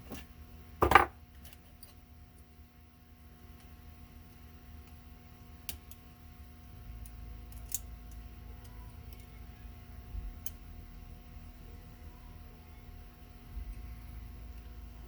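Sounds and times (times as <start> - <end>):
small tools clicking and tapping: 7.0 - 9.4.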